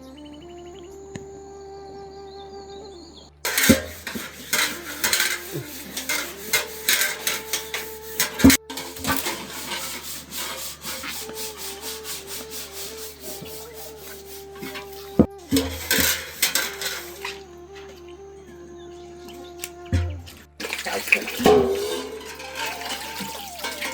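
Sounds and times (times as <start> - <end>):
rough scraping strokes: 3.4 - 17.5, 19.9 - 23.9
faint flute-like melody: 4.8 - 20.6, 21.5 - 23.9.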